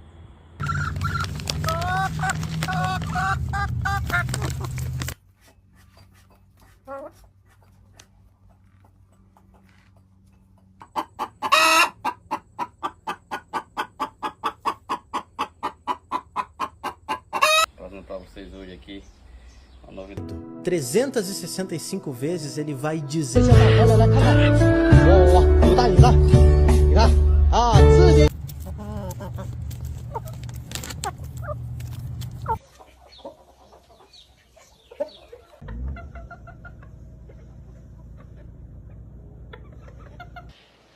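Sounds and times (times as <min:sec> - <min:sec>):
chicken squawk: 0:00.6 - 0:04.8, 0:10.8 - 0:17.7, 0:28.6 - 0:40.6
chicken clucking: 0:00.6 - 0:17.7, 0:28.4 - 0:40.9.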